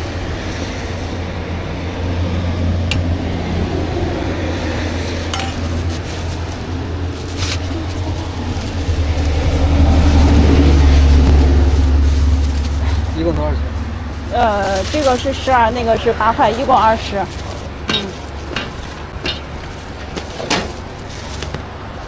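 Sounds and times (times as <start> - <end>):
food stall sounds: 0.0 - 22.0
steady low rumble: 0.0 - 22.0
utensils clinking: 5.2 - 6.4, 14.4 - 21.5.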